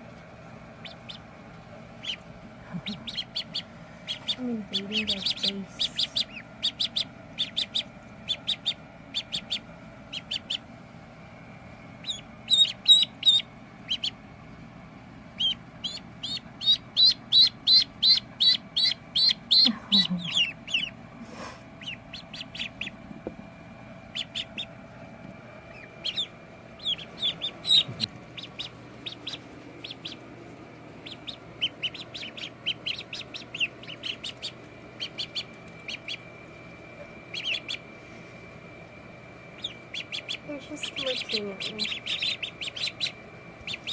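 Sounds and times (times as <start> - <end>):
ducklings peeping: 0.0 - 43.9.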